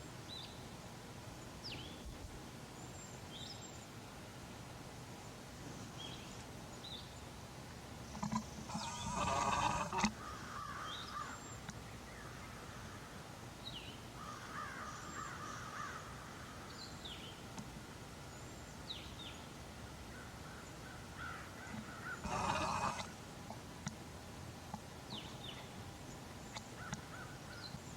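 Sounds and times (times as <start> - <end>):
faint outdoor background: 0.0 - 27.9
harsh scratchy bird calls: 8.1 - 11.4, 21.2 - 23.2.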